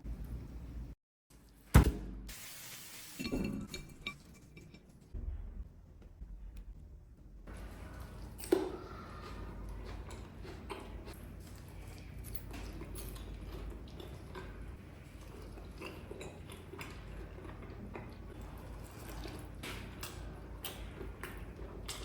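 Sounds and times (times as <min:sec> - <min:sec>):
crunchy chewing: 0:07.5 - 0:22.0.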